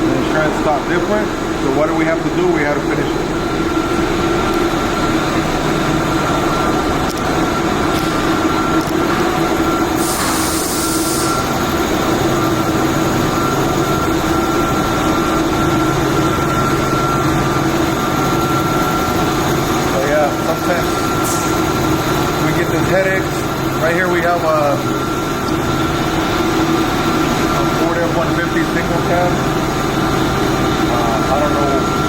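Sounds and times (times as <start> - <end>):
steady machine drone: 0.0 - 32.0
short burst of hiss: 10.0 - 11.3.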